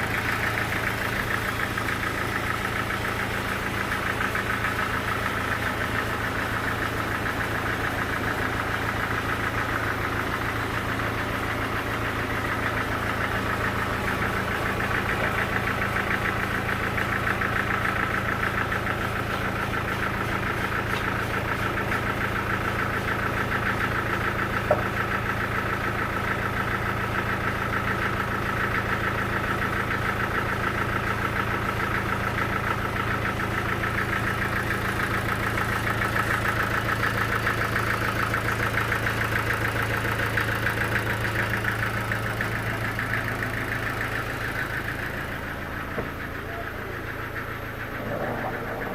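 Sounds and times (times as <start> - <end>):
sawmill machinery humming: 0.0 - 48.9.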